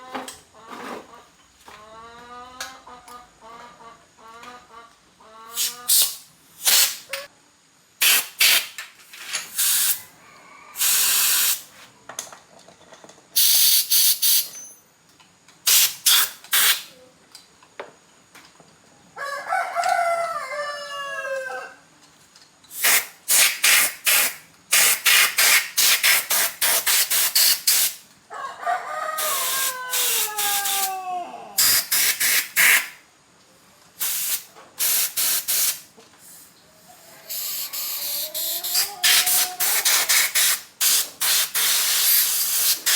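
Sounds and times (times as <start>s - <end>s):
spray hissing: 5.6s - 7.1s, 8.0s - 8.8s, 9.6s - 10.0s, 10.8s - 11.7s, 15.7s - 16.9s, 22.7s - 28.0s, 31.6s - 33.0s, 34.0s - 35.8s, 37.3s - 42.9s
rooster crowing: 9.9s - 11.2s, 19.2s - 21.8s, 28.3s - 31.6s, 36.9s - 40.1s.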